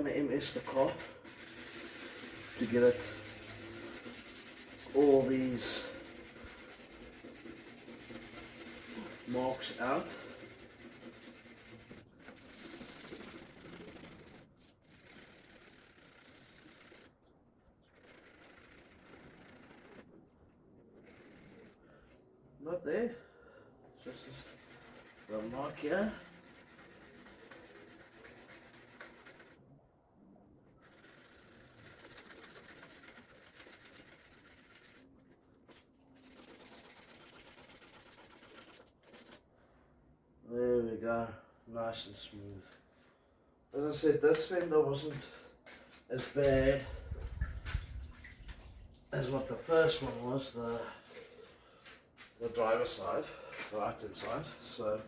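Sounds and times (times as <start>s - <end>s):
sandpaper rubbing by hand: 0.4s - 17.1s, 18.0s - 20.1s, 24.0s - 29.6s, 30.8s - 39.5s, 45.7s - 46.8s, 49.2s - 55.0s.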